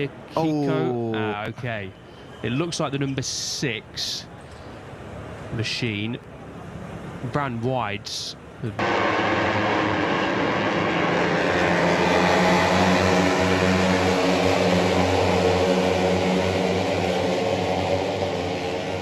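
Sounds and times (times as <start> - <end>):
racing motorcycle engines: 8.6 - 19.0.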